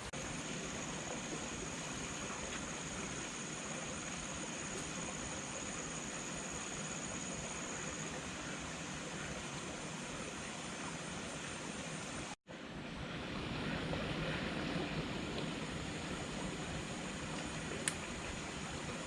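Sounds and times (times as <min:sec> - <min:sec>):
high insect drone: 0:00.2 - 0:12.1.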